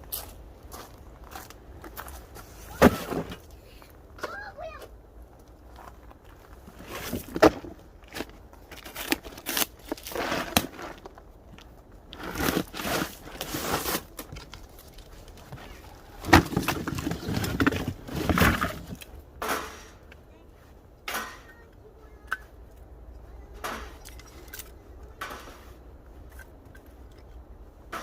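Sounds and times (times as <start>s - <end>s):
scraping and rustling: 2.0s - 3.6s, 5.8s - 21.6s.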